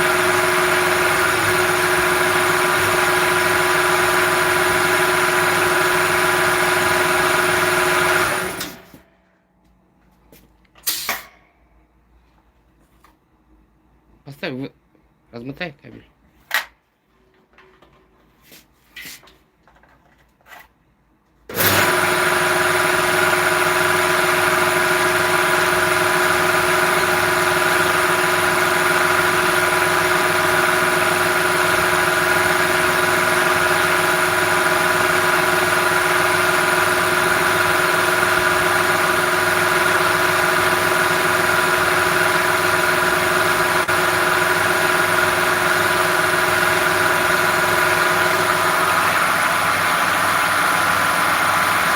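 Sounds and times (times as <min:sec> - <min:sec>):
electric machine running with whine: 0:21.6 - 0:51.9.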